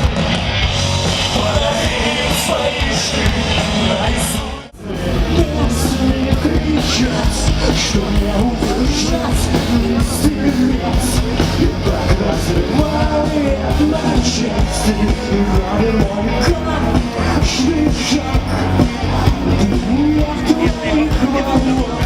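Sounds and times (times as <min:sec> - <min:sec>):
heavy drums: 0:00.0 - 0:22.0
live rock band playing: 0:00.0 - 0:22.0.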